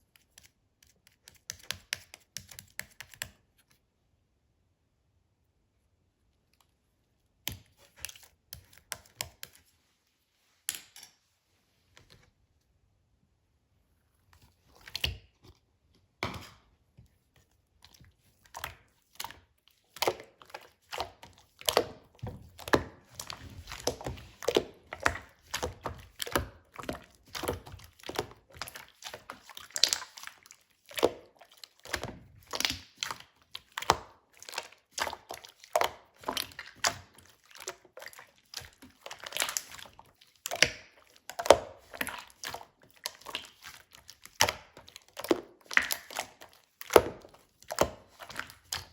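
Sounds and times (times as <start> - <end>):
slime squelching: 7.2 - 9.9, 14.4 - 48.9.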